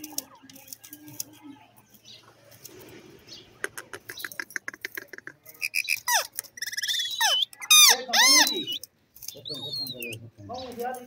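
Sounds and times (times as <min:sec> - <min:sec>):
parakeet clicks whistles and squawks: 0:03.6 - 0:10.2.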